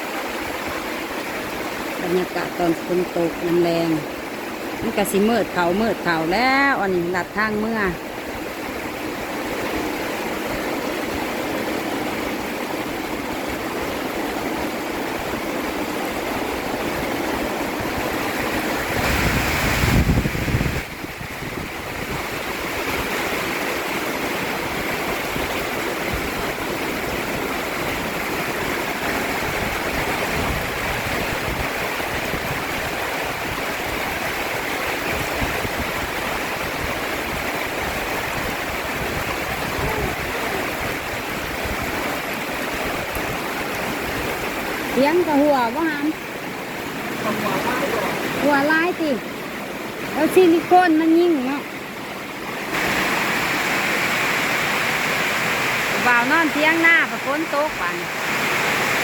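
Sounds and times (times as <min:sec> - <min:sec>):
water running hard: 0:00.0 - 0:59.0
heavy rain falling: 0:07.2 - 0:59.0.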